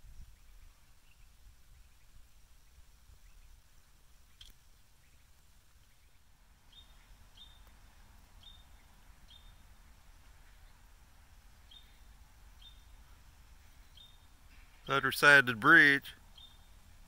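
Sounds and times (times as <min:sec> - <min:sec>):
low steady rumble: 0:00.0 - 0:17.0
bird chip calls: 0:04.2 - 0:07.8, 0:08.4 - 0:10.8, 0:11.6 - 0:16.9.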